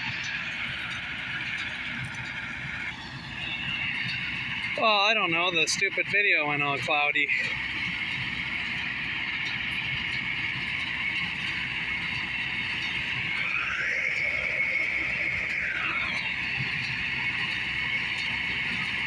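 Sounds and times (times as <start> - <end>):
tractor and baler running: 0.0 - 19.0.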